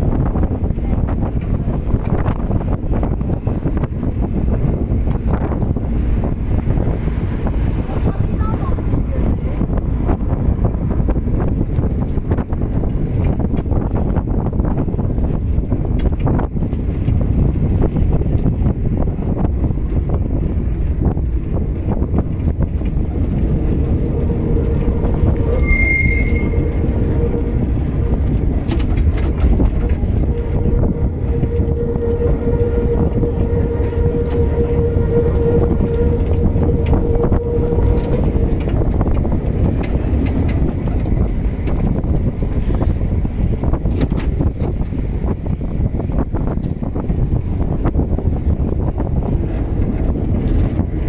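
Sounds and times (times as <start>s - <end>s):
tram wheels rumbling on rail: 0.0s - 51.0s
long steady whine: 17.8s - 42.8s
brief high squeal: 24.2s - 27.6s.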